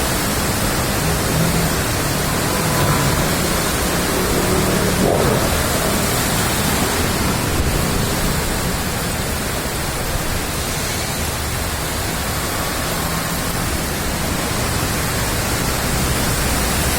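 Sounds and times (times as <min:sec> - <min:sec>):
heavy rain: 0:00.0 - 0:16.9
runoff water rushing: 0:00.0 - 0:16.9.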